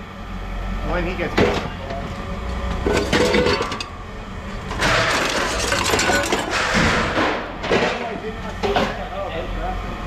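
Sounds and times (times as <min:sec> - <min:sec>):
scrap metal clattering: 0:02.8 - 0:04.0, 0:04.6 - 0:09.0.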